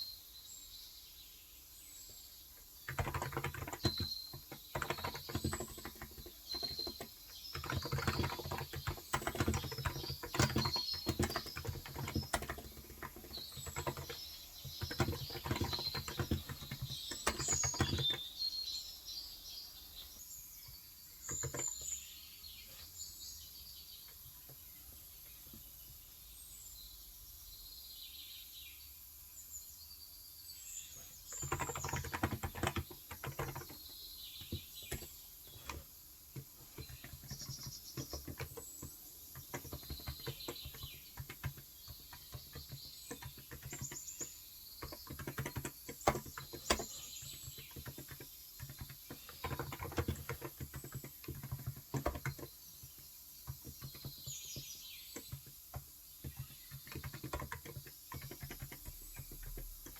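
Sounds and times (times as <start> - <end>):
birds chirping: 0.0 - 59.9
keyboard typing: 2.8 - 18.5, 21.2 - 22.0, 31.3 - 59.9.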